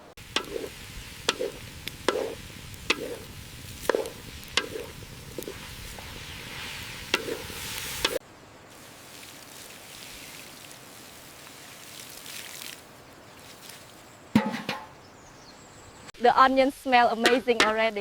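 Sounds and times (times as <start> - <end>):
steady hiss: 0.0 - 14.2.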